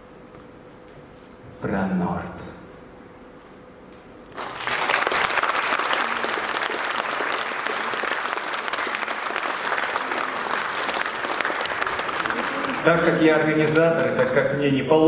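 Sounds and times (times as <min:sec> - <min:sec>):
audience applauding: 0:04.3 - 0:14.4.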